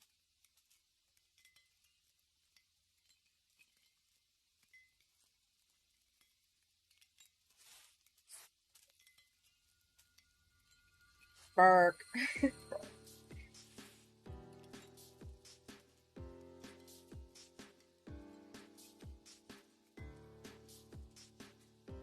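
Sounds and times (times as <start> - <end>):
faint small ticks and clicks: 0.0 - 11.4
soft brushing sounds: 7.4 - 10.2, 13.3 - 14.2.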